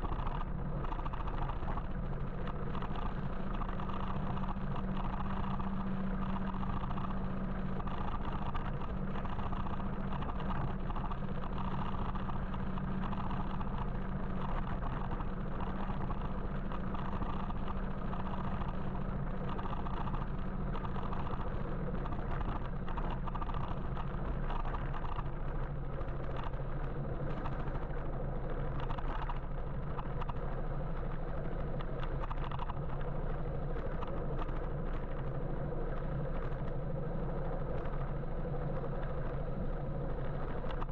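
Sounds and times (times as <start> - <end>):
low steady hum: 0.0 - 40.9
road and traffic noise: 10.4 - 40.9.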